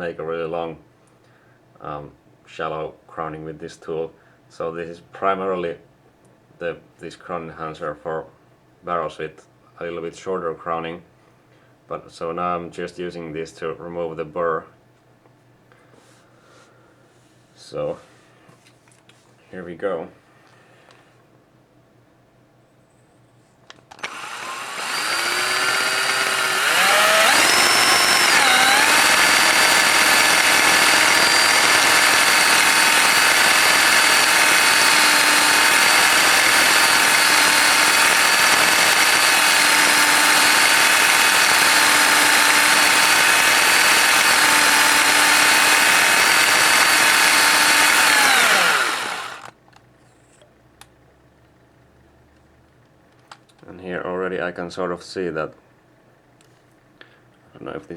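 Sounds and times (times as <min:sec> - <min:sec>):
electric drill whining: 0:23.9 - 0:49.5.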